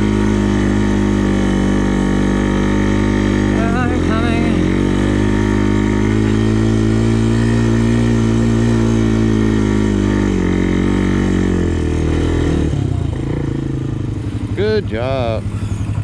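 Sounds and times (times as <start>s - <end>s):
quad bike engine climbing hill: 0.0s - 16.0s.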